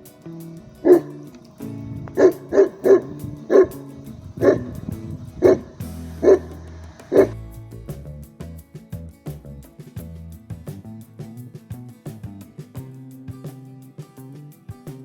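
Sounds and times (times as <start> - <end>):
background music: 0.0 - 8.6
dog barking: 0.8 - 1.3, 2.1 - 7.4.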